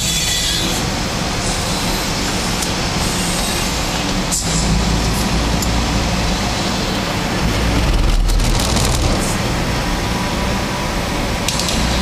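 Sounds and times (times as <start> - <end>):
vehicle road noise from inside: 0.7 - 12.0.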